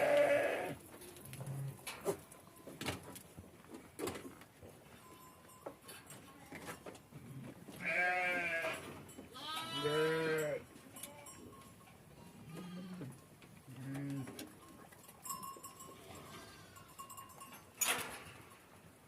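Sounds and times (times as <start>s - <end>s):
animals bleating: 0.0s - 0.8s, 7.8s - 10.7s.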